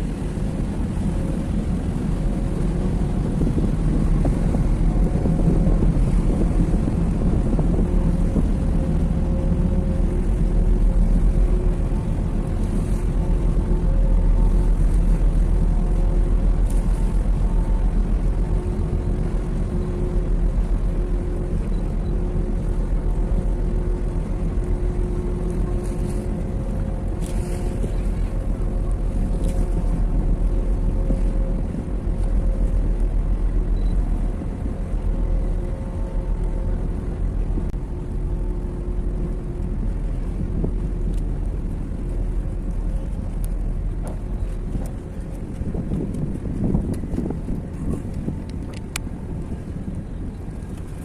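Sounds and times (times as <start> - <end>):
boat engine droning: 0.0 - 51.0
wind rumbling on microphone: 0.0 - 51.0.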